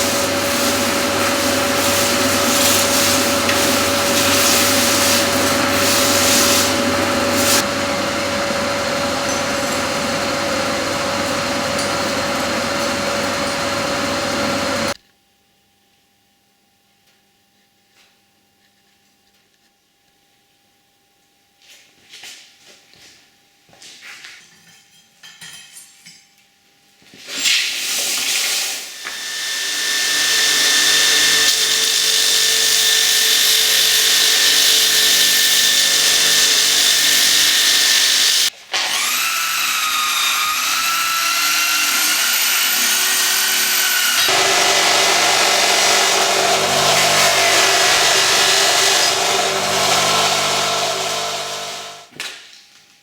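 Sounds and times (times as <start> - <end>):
electric power tool grinding: 0.0 - 15.0, 28.2 - 52.1.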